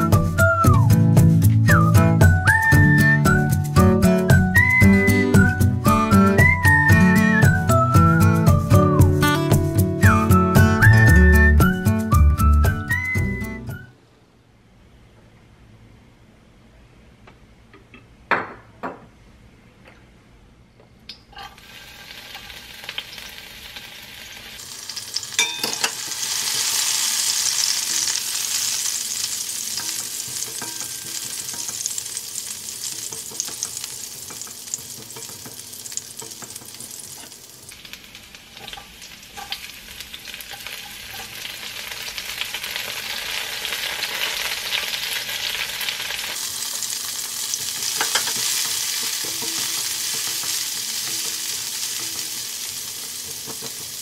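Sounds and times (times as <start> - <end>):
garlic and onions sizzling in oil: 21.4 - 54.0
spoon knocking on wok: 25.4 - 26.1, 29.8 - 32.0, 32.8 - 37.3, 47.6 - 52.4.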